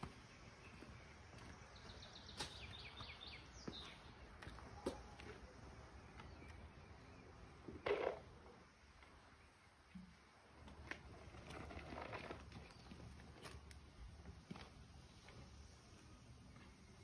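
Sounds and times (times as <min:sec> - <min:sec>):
songbird singing falling notes: 0:01.8 - 0:04.0.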